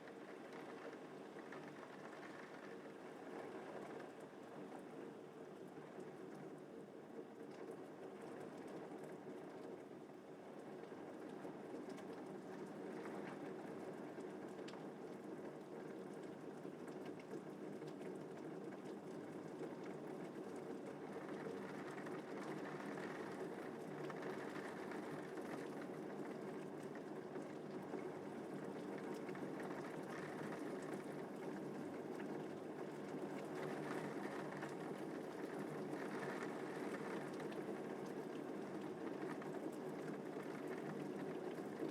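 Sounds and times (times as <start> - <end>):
steady rain falling: 10.6 - 41.9.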